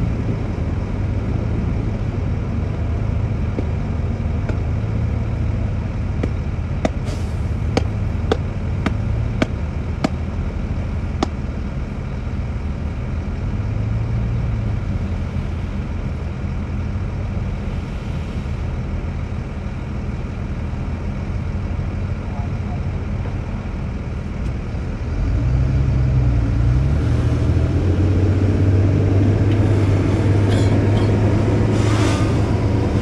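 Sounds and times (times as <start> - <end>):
heavy diesel engine running: 0.0 - 33.0
sharp knocks: 6.2 - 7.1, 7.7 - 10.2.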